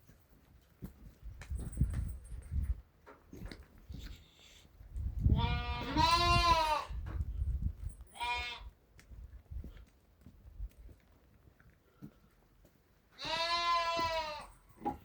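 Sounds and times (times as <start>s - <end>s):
sheep bleating: 5.4s - 6.9s, 13.2s - 14.6s.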